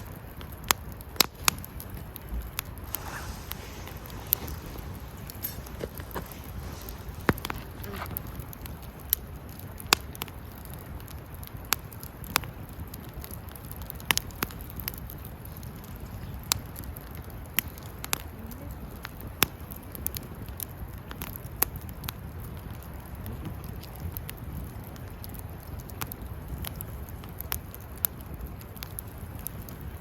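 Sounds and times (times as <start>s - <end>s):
low steady rumble: 0.0s - 10.0s
campfire crackling and popping: 0.0s - 30.0s.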